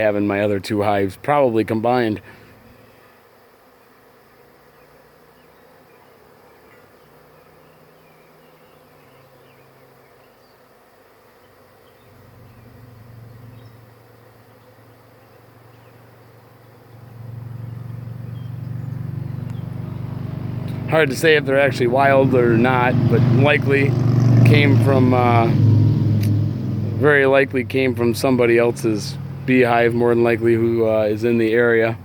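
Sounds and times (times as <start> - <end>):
bee swarm buzzing: 0.0 - 32.0
low hum: 16.9 - 32.0.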